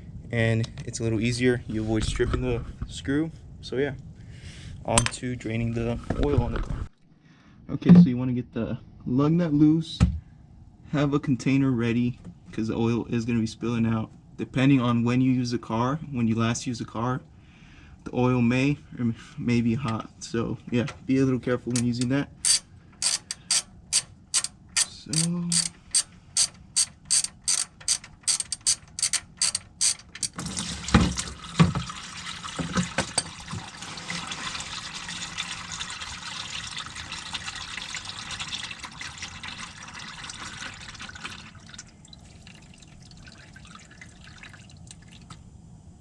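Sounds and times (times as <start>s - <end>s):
ratchet wrench clicking: 21.7s - 30.4s
oil pouring out: 29.8s - 45.4s.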